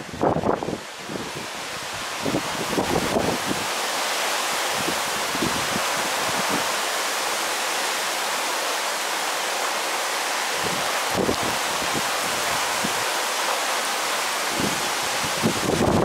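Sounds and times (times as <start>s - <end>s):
wind buffeting microphone: 0.0s - 3.8s, 4.7s - 6.7s, 10.6s - 13.2s, 14.5s - 16.0s
heavy rain hissing: 0.0s - 16.0s.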